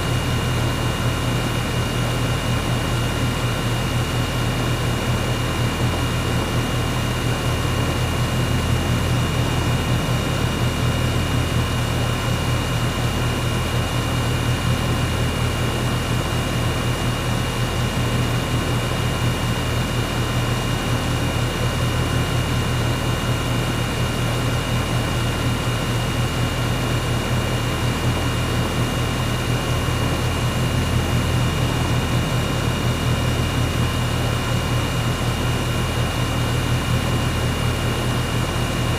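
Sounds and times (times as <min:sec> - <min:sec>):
air conditioner humming: 0:26.5 - 0:38.9.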